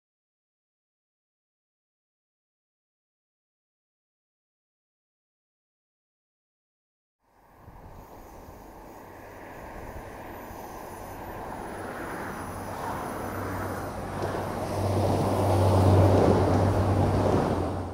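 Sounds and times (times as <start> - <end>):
passenger train passing: 7.3 - 17.9.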